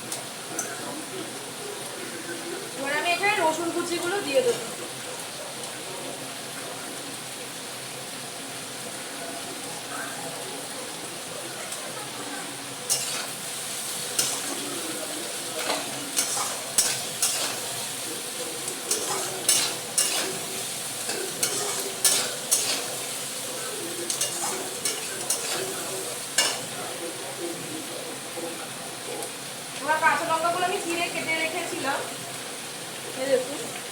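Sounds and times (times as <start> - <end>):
onions sizzling in hot oil: 0.0 - 33.9
spatula scraping a pan: 12.9 - 26.8.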